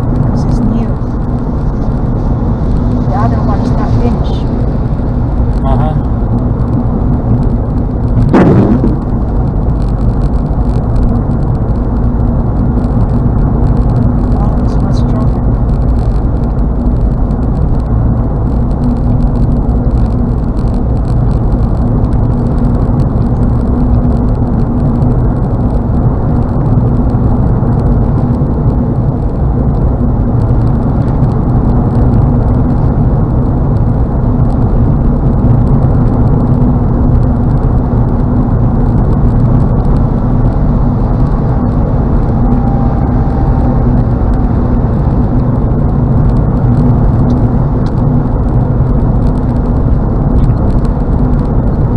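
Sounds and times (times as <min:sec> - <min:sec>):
car engine and tyres droning: 0:00.0 - 0:51.9
constant hum: 0:00.0 - 0:51.9.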